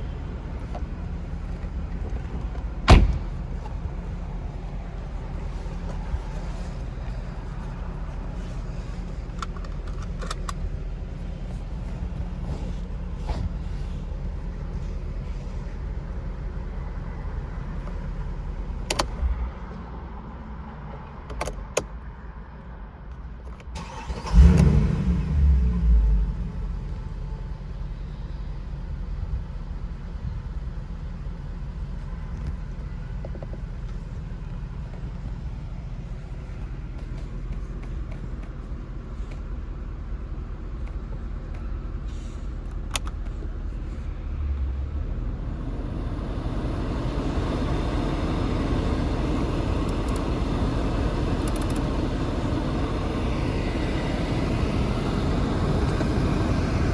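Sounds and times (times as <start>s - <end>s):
car engine idling: 0.0s - 19.2s, 23.8s - 56.9s
engine starting with flare: 23.8s - 26.7s
clicks: 49.8s - 50.3s, 51.4s - 52.0s.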